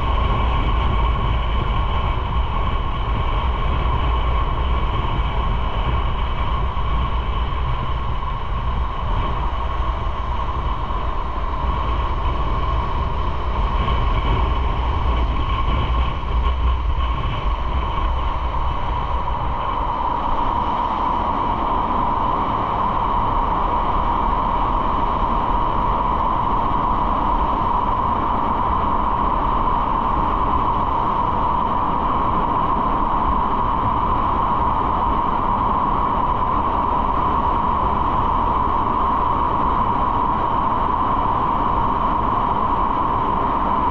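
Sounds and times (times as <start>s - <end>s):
steady whine: 0.0s - 43.9s.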